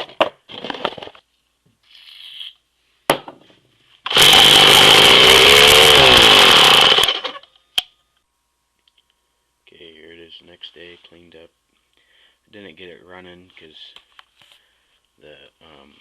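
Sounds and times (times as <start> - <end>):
model engine buzzing: 4.1 - 7.4.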